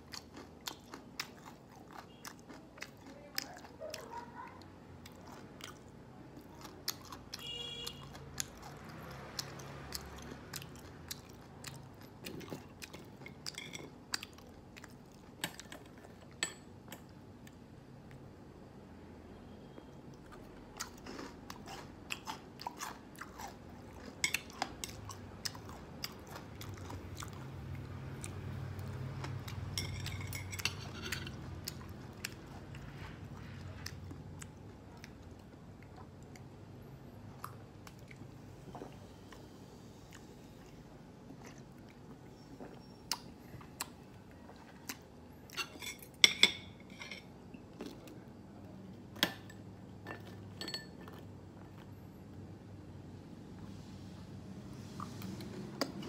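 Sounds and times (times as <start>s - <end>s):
chewing and crunching fried pork: 0.0s - 18.2s, 20.1s - 45.8s.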